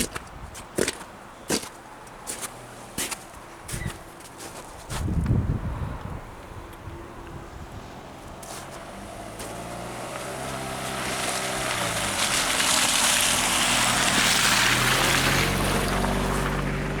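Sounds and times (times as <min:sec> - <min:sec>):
vehicle engine approaching: 0:05.4 - 0:17.0.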